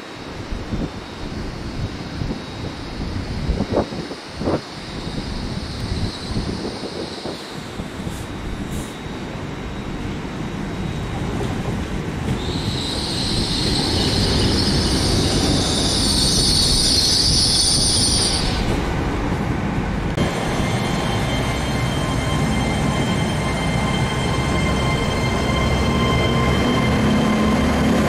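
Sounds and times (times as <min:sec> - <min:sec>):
train rumbling slowly: 0:00.0 - 0:28.0
wheel brakes squealing: 0:12.3 - 0:18.8.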